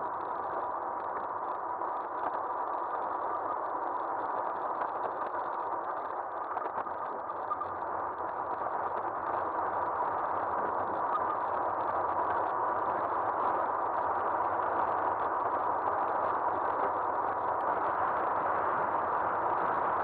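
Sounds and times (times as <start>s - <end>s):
rushing wind: 7.8s - 20.0s.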